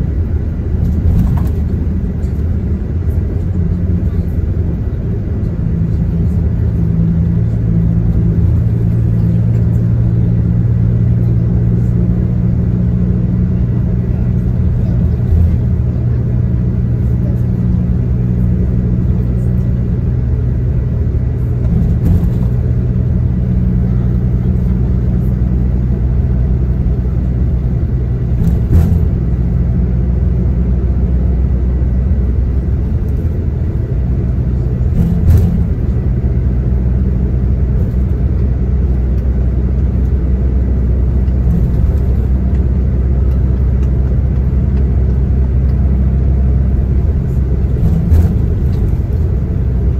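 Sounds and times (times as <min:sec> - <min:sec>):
low engine drone: 0:00.0 - 0:49.9
road noise: 0:00.0 - 0:49.9
knocks and rattles: 0:34.9 - 0:36.0.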